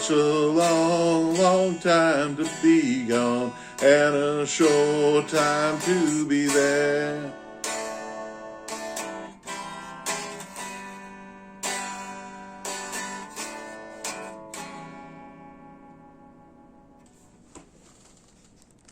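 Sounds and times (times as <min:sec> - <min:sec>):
acoustic guitar playing: 0:00.0 - 0:17.3.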